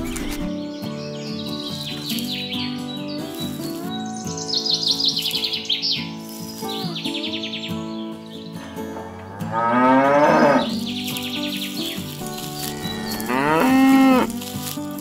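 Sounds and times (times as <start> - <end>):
background music: 0.0 - 15.0
birds chirping: 0.0 - 15.0
cow mooing: 9.3 - 10.8, 12.7 - 14.4.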